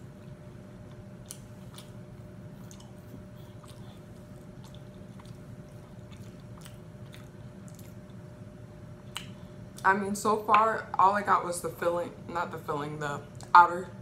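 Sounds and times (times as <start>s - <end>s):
faint steady hum: 0.0s - 14.0s
person chewing: 0.1s - 8.4s, 9.0s - 9.8s
wet mouth clicks: 2.6s - 8.2s, 9.1s - 9.4s.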